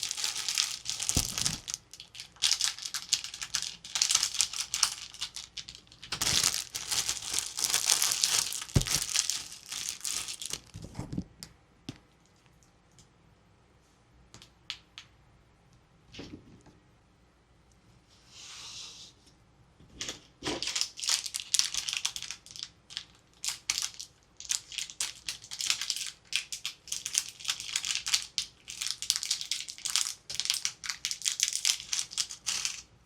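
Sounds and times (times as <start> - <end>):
packaging crinkled and torn: 0.0 - 11.0, 20.6 - 32.9.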